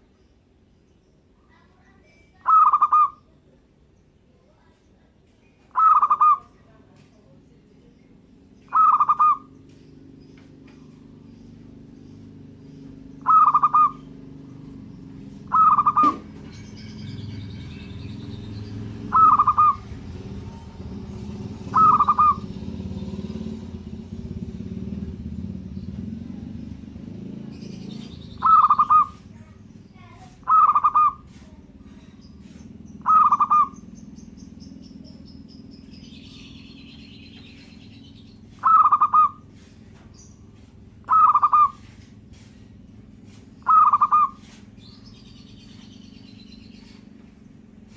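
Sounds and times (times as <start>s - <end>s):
birds chirping: 0.0s - 47.9s
dove cooing: 2.4s - 3.3s, 5.7s - 6.6s, 8.7s - 9.6s, 13.2s - 16.6s, 19.1s - 20.9s, 21.6s - 22.6s, 28.2s - 32.1s, 33.0s - 33.9s, 38.5s - 39.7s, 41.0s - 42.0s, 43.6s - 44.6s
low background rumble: 2.6s - 47.9s.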